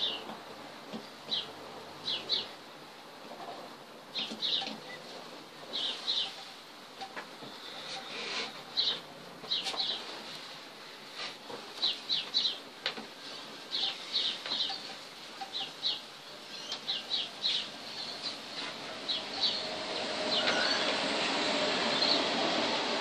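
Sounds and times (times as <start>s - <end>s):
small birds chirping: 0.0s - 0.4s, 1.0s - 2.6s, 4.1s - 5.1s, 5.7s - 10.4s, 11.7s - 21.0s, 21.9s - 22.3s.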